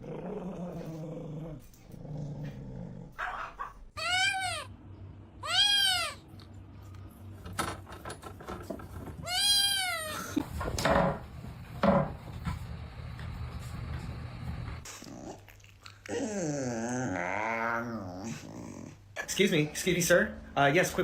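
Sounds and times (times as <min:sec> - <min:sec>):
cat meowing: 0:04.0 - 0:04.7, 0:05.4 - 0:06.2, 0:09.2 - 0:10.3.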